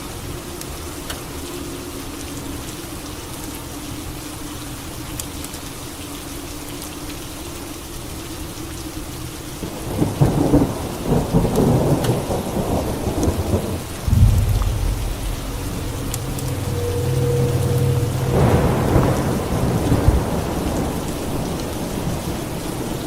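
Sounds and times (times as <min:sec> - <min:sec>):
steady rain: 0:00.0 - 0:23.0
thunder rumbling: 0:09.9 - 0:22.2
deep thunder boom: 0:14.0 - 0:21.0.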